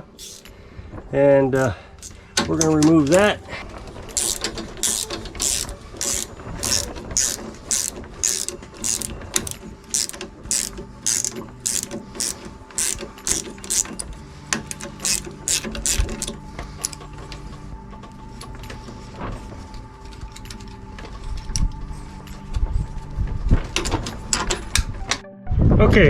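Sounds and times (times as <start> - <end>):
ratchet clicking: 0.0 - 0.5, 2.0 - 3.3, 4.0 - 17.1.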